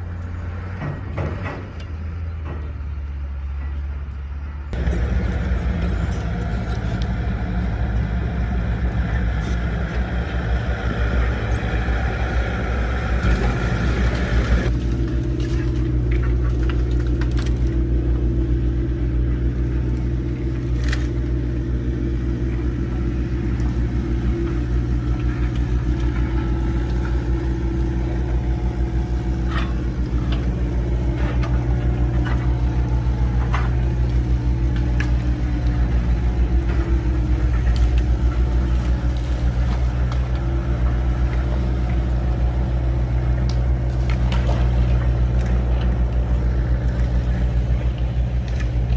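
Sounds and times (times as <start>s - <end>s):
truck engine running: 0.0s - 48.9s
sharp knocks and clunks: 0.2s - 3.0s.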